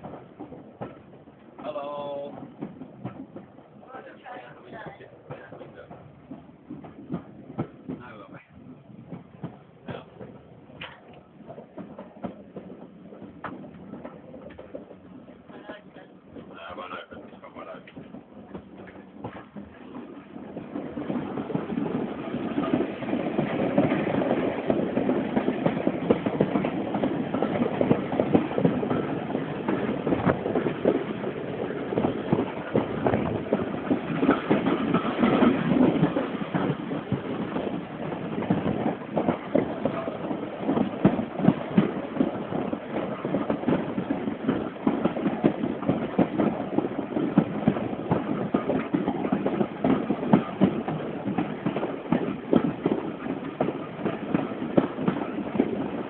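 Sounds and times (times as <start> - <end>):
steam train rumbling on rails: 0.0 - 56.0.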